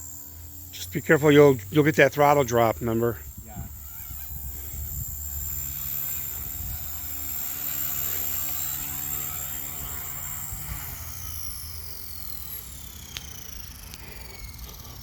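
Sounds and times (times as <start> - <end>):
helicopter motor and rotors whining: 0.0 - 15.0.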